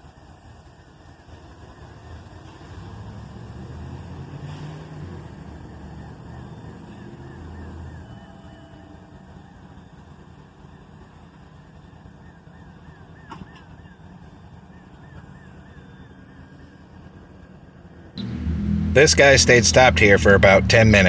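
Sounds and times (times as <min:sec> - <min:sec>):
diesel locomotives idling: 0:14.2 - 0:21.0.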